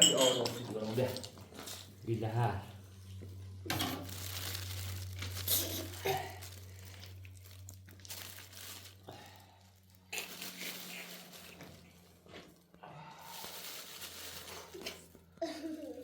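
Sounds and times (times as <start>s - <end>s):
crinkling rustling: 3.2s - 16.0s.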